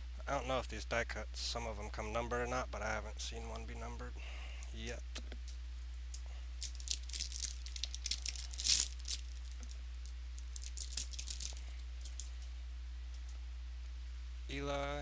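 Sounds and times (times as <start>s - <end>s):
steady low hum: 0.0s - 15.0s
cards and wrappers clicking: 5.4s - 9.8s, 10.4s - 12.4s
wrapper rustle: 6.5s - 12.5s.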